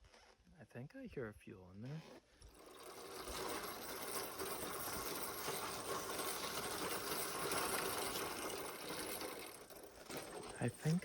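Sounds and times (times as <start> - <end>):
minibike rattling and fuel sloshing: 2.5 - 11.0.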